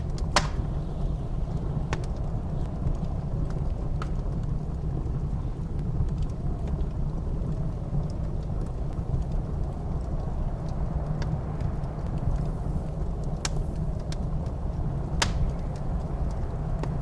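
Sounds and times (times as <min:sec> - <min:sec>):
blizzard wind rumbling: 0:00.0 - 0:17.0
wood fire crackling: 0:00.0 - 0:17.0.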